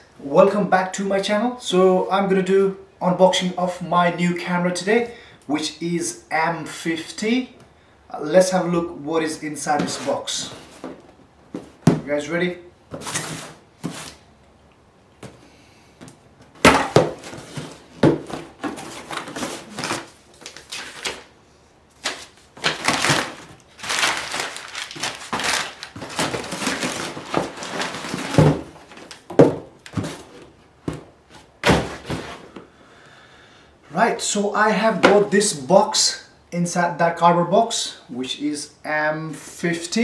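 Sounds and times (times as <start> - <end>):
cardboard rustling and scraping: 9.8 - 12.0, 12.9 - 14.2, 16.6 - 21.3, 21.9 - 32.6
box knocks and thumps: 10.8 - 12.1, 16.6 - 19.9, 25.4 - 32.6.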